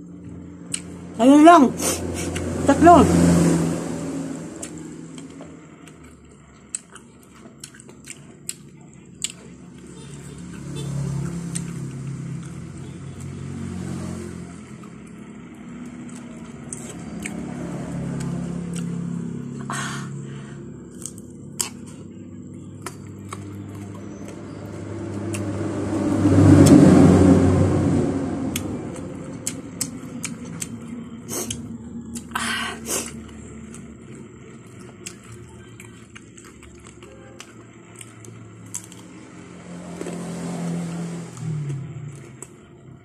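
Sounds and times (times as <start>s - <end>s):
biting and chewing fruit: 0.1s - 1.1s, 4.6s - 20.2s, 20.8s - 27.2s, 28.5s - 43.0s
low rumble: 22.4s - 32.3s.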